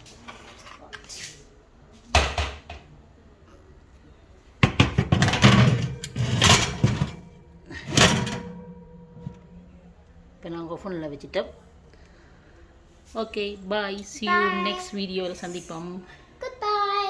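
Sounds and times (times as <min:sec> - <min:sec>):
tray knocking: 0:04.6 - 0:07.3
tray clattering and rattling: 0:04.6 - 0:09.6.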